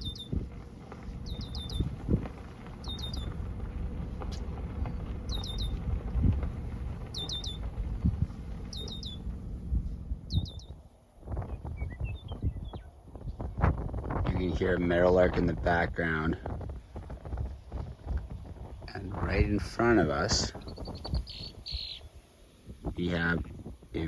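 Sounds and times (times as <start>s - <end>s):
small bird calling: 0.0s - 9.4s, 10.2s - 10.8s, 20.4s - 22.4s
wind rumble on microphone: 0.0s - 24.0s.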